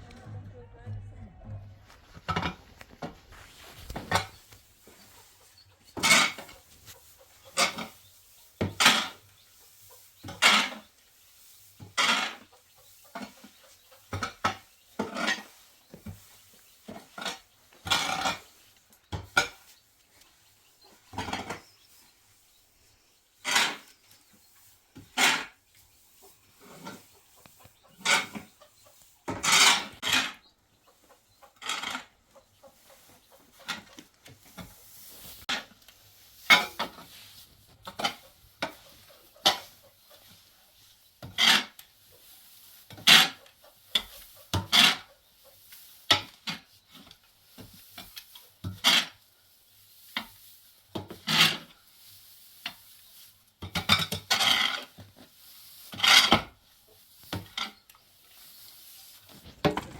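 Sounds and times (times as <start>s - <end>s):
tool scraping through mortar: 5.9s - 9.3s, 11.8s - 12.5s, 16.9s - 19.6s, 23.4s - 24.0s, 33.2s - 39.8s, 41.2s - 41.9s, 42.9s - 45.2s, 46.0s - 49.2s, 50.2s - 51.8s, 53.6s - 56.6s.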